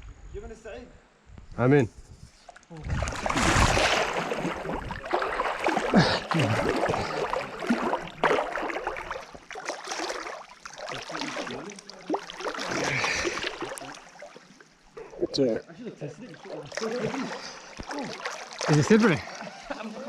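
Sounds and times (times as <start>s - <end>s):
water sloshing: 2.5s - 15.4s, 16.2s - 20.0s
person plunging into water: 2.8s - 14.5s.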